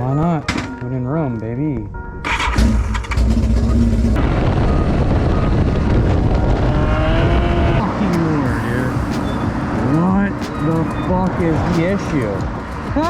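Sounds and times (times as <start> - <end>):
wind noise: 1.8 - 13.0
motorcycle engine at speed: 2.6 - 8.4.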